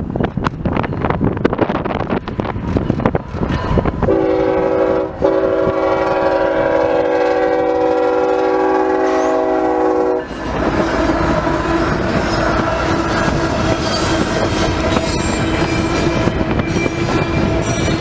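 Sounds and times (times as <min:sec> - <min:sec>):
rolling train noise: 0:00.0 - 0:18.0
locomotive air horn: 0:04.1 - 0:10.4.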